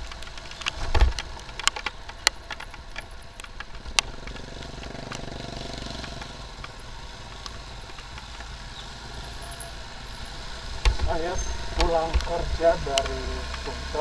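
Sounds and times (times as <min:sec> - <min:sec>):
sharp ticks: 0:00.0 - 0:08.9, 0:10.2 - 0:14.0
motorcycle engine and road rumble: 0:00.0 - 0:14.0
passing vehicle engine: 0:03.3 - 0:14.0.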